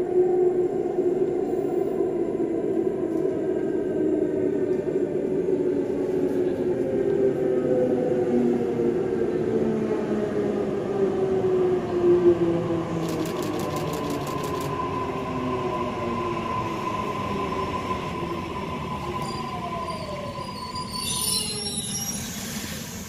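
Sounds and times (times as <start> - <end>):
brake squeal: 19.2 - 23.0.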